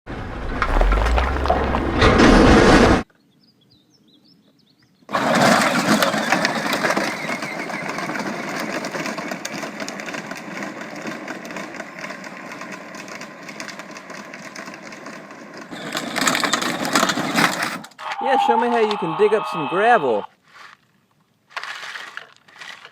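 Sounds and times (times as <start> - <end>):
loud sound: 0.2 - 3.0
motor with crackly rattle: 15.7 - 17.9.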